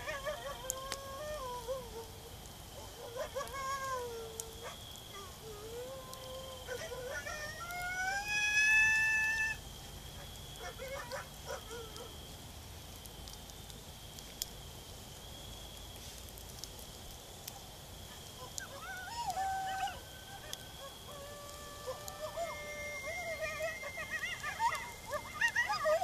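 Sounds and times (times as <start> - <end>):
coyote yips and howls from phone: 0.0 - 2.1, 2.8 - 5.4, 6.4 - 9.6, 10.6 - 12.1, 18.2 - 26.0
campfire crackling: 0.0 - 26.0.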